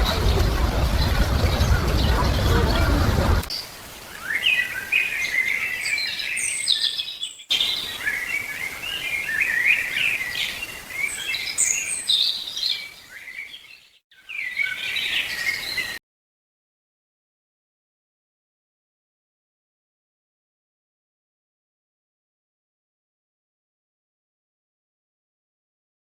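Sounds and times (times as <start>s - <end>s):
birds chirping and trilling: 0.0s - 16.0s.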